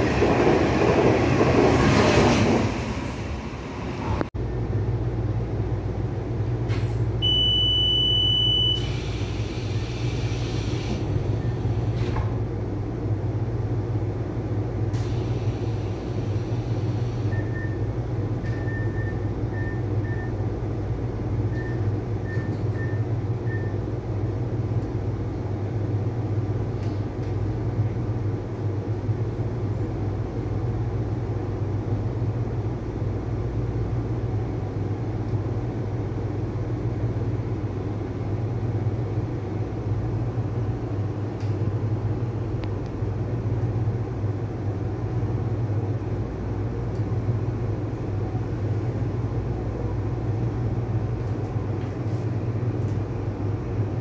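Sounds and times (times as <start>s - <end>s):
train rumbling in motion: 0.0s - 7.3s, 8.8s - 54.0s
single high beep: 7.2s - 8.9s.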